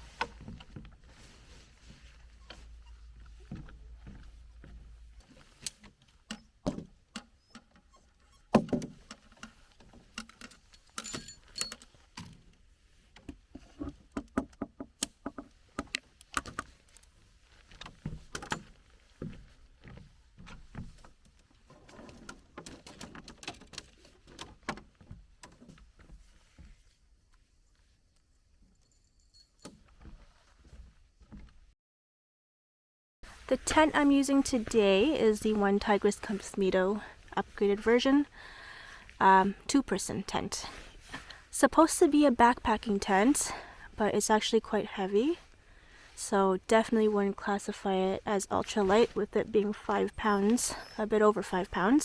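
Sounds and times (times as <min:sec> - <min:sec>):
camping gear clicks and knocks: 0:08.6 - 0:18.8, 0:20.4 - 0:26.3
metallic jingle: 0:10.5 - 0:11.9, 0:28.3 - 0:29.9.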